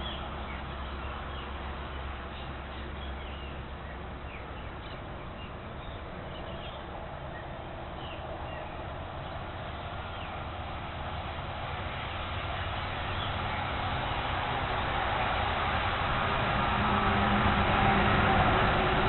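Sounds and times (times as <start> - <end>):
low hum: 0.0 - 19.0
rushing noise: 6.9 - 19.0.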